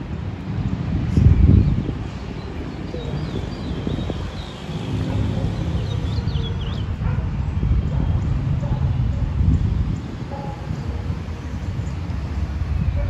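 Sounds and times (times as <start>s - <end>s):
distant traffic: 0.0s - 13.0s
wind: 0.0s - 13.0s
small birds chirping: 1.0s - 10.9s.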